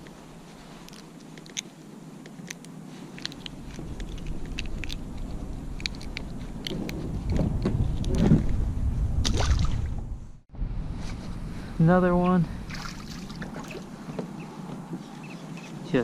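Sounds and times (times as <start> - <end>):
sharp clicks and ticks: 2.3 - 8.2
low rumble: 3.4 - 14.0.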